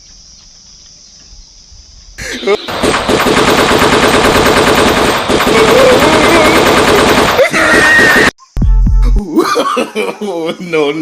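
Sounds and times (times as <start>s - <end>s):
machine-gun automatic fire: 2.7s - 7.5s.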